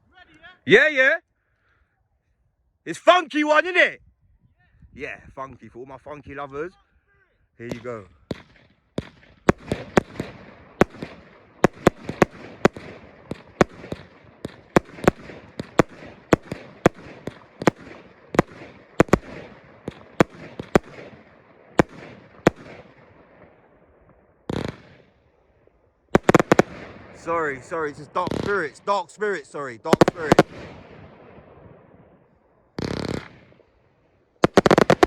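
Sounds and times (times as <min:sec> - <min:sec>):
firework bangs: 0:07.7 - 0:25.2, 0:26.1 - 0:33.8, 0:34.4 - 0:35.0
firework crackling: 0:09.0 - 0:23.0, 0:24.5 - 0:25.1, 0:26.2 - 0:31.0, 0:32.8 - 0:33.7, 0:34.4 - 0:35.0.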